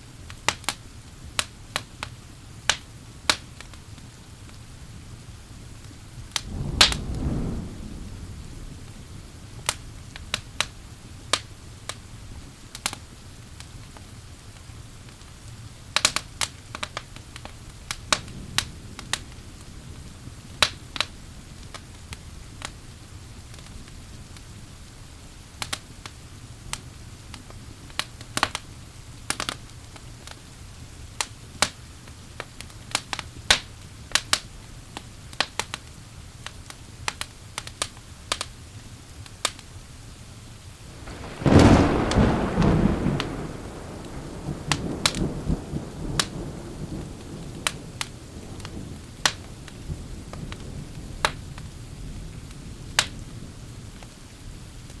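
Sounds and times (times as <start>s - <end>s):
rain hiss: 0.0s - 55.0s
wood fire crackling and popping: 0.1s - 55.0s
low thunder rumble: 6.2s - 11.0s, 40.8s - 54.0s.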